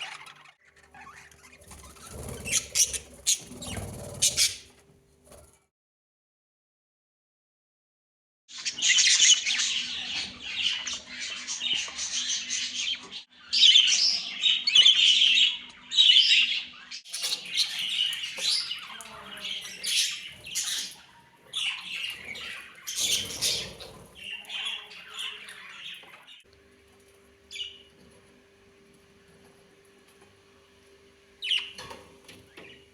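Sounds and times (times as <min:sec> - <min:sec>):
budgerigars chattering: 0:00.0 - 0:04.7, 0:08.6 - 0:26.4, 0:27.5 - 0:27.9, 0:31.4 - 0:32.0.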